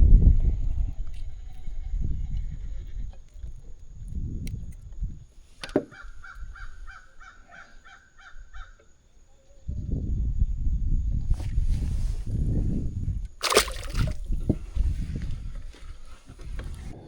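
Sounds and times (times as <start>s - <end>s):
bird calling: 5.8s - 9.6s.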